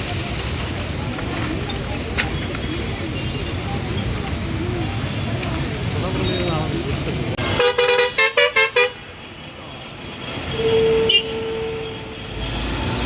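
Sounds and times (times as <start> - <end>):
truck horn short toots: 10.5 - 12.1.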